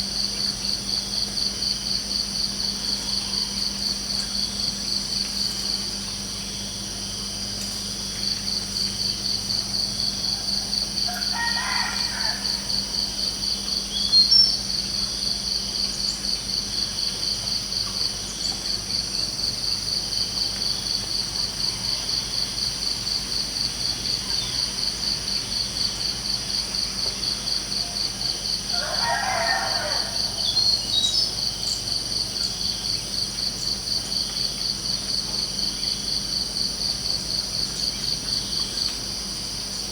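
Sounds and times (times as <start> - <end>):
crickets chirping: 0.0 - 39.9
rooster crowing: 10.3 - 13.0, 27.8 - 30.9.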